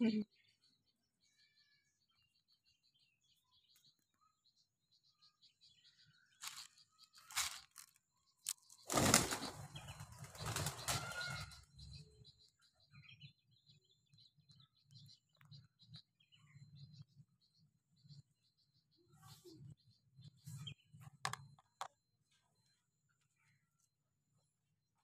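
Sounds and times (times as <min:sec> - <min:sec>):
small birds chirping faintly: 0:00.0 - 0:25.0
bird wings flapping: 0:08.8 - 0:11.4.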